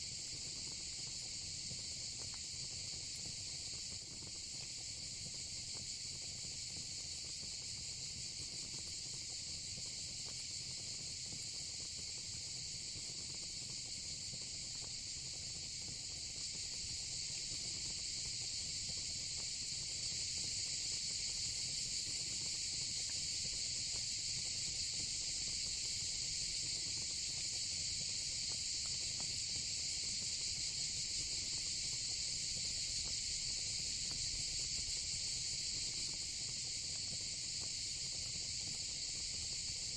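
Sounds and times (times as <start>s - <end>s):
crickets and cicadas chirping: 8.4s - 39.9s.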